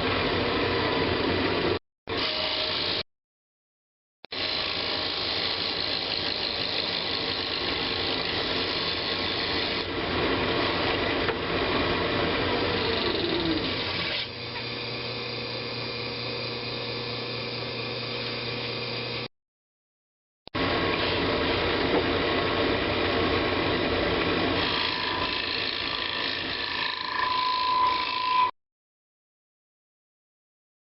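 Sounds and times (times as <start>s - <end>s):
turning tool cutting wood: 4.3s - 19.3s, 20.7s - 28.5s
lathe motor hum: 4.4s - 19.3s, 20.6s - 28.1s.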